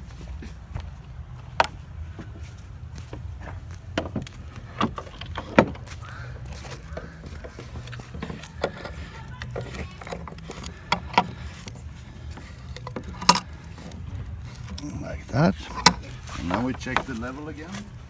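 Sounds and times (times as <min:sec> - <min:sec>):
sharp knocks and metallic clinks: 0:03.1 - 0:17.5.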